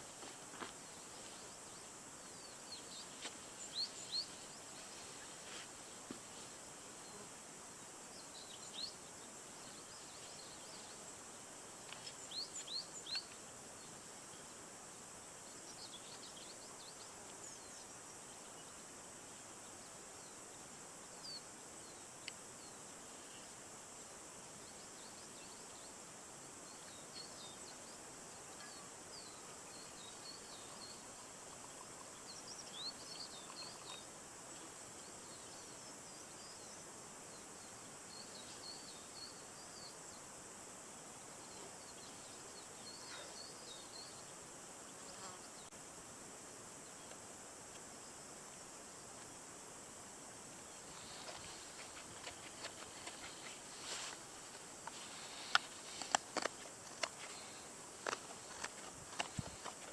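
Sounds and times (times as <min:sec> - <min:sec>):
small birds chirping: 0:00.0 - 0:06.4, 0:11.9 - 0:14.5, 0:26.6 - 0:40.3, 0:41.3 - 0:45.8, 0:50.6 - 0:59.9
steady faint hiss: 0:00.0 - 0:59.9.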